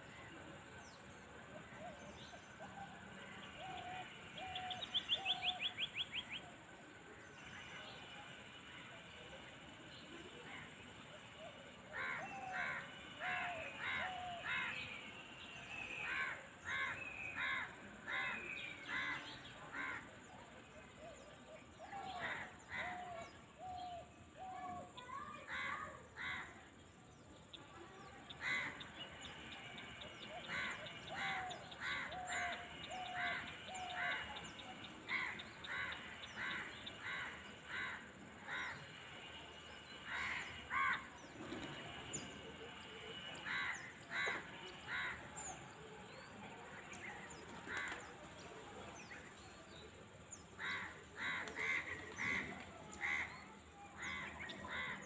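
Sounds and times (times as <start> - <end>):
crows cawing: 30.5 - 34.3, 35.1 - 38.8, 40.1 - 41.1, 43.4 - 45.2, 50.6 - 52.4, 53.0 - 53.4, 54.0 - 55.0.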